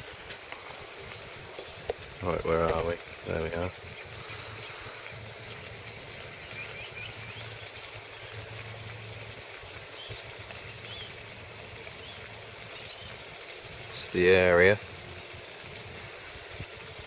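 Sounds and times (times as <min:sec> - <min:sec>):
background hiss: 0:00.0 - 0:17.0
bird chirps: 0:06.3 - 0:07.8, 0:09.9 - 0:11.2, 0:12.0 - 0:13.2.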